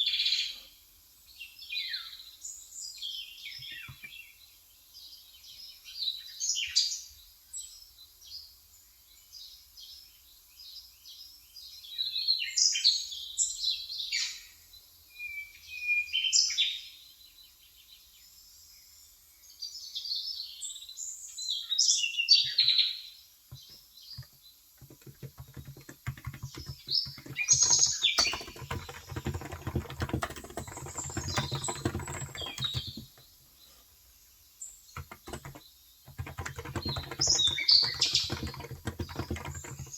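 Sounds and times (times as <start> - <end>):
fast keyboard typing: 23.5 - 33.3, 35.0 - 39.9.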